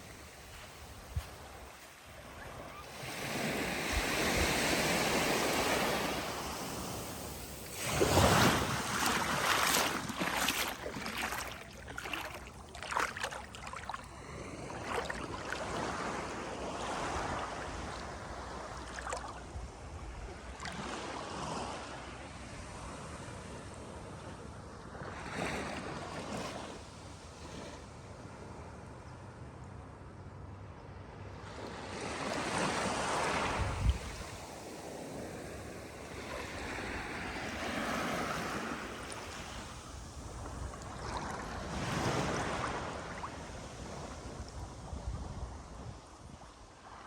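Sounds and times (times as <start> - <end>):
waves breaking on beach: 0.0 - 19.6, 32.0 - 45.7
water washing in: 6.1 - 16.2.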